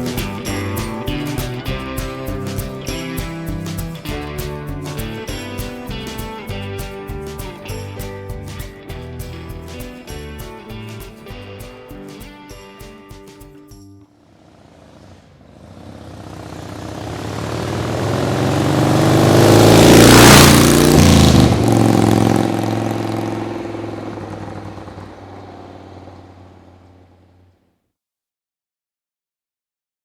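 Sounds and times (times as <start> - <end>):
motorcycle passing by: 14.1 - 27.5.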